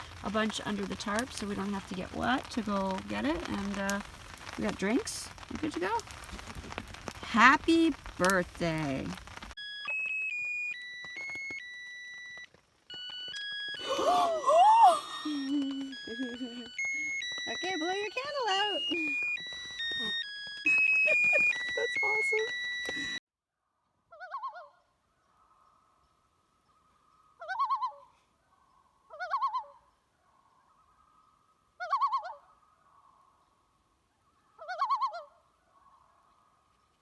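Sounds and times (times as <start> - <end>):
electronic beep tones: 13.0 - 23.2.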